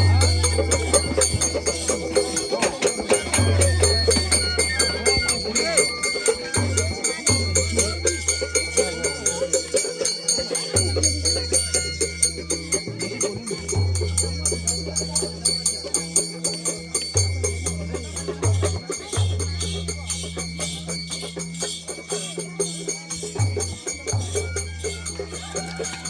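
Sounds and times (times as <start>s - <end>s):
jingling rattling: 0.0s - 26.0s
percussion beat: 0.0s - 26.0s.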